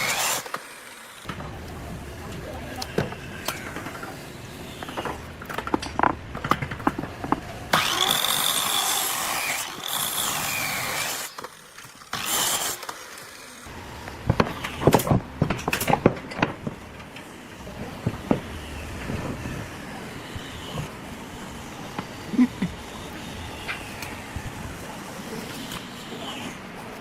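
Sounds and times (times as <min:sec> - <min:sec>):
sharp clicks and knocks: 0:04.8 - 0:07.6
power tool whining: 0:07.7 - 0:13.7.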